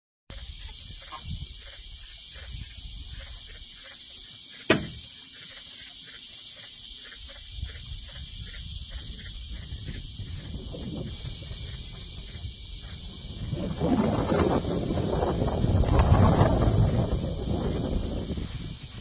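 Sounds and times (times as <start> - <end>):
insect chorus drone: 0.3 - 19.0
sharp click: 4.7 - 5.1
low rumble: 8.7 - 19.0.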